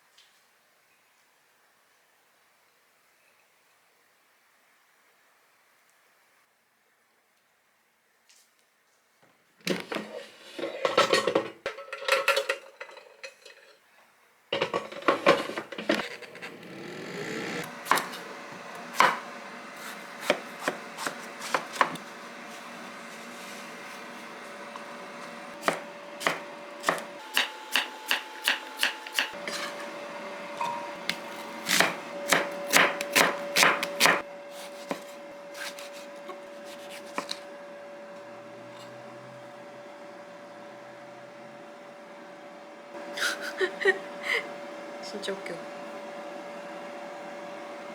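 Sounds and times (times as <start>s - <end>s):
kitchen things clinking: 9.9s - 13.8s, 14.6s - 16.7s, 25.7s - 34.2s.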